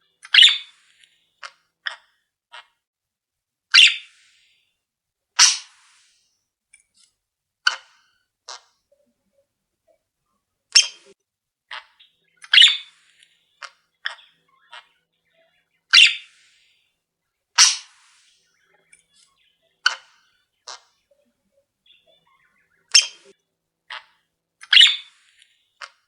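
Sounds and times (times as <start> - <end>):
cage birds calling: 0.1 - 1.2, 3.7 - 4.4, 10.8 - 16.9, 17.6 - 26.0.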